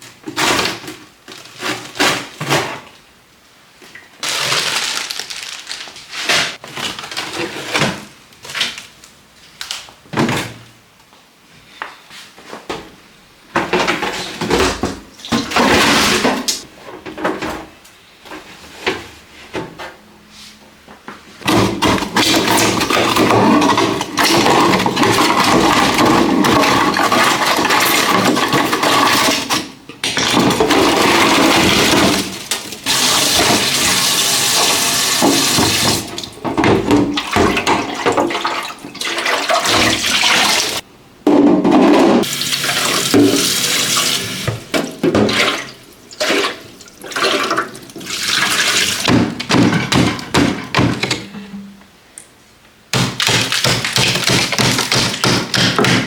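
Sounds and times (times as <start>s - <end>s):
water running from a tap: 31.0s - 36.1s, 42.2s - 44.7s.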